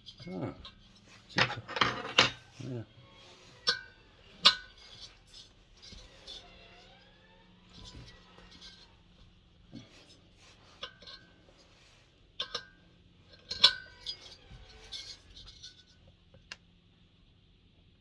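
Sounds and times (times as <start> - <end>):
spanners clinking on metal: 0.0 - 2.9, 12.4 - 15.9.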